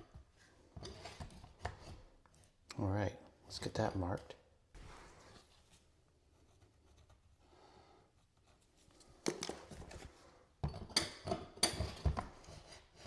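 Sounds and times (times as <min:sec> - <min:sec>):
taps and scraping: 0:00.0 - 0:02.4
hand tools on drywall: 0:00.0 - 0:02.6, 0:06.4 - 0:13.0
clicks and scrapes: 0:00.8 - 0:02.5.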